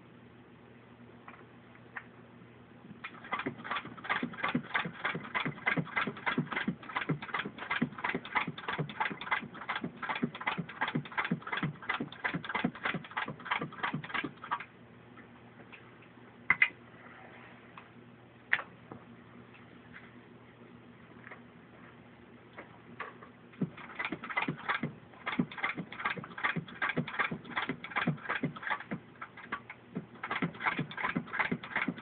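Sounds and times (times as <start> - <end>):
hand-cranked sewing machine clacking: 3.1 - 14.6, 23.6 - 32.0.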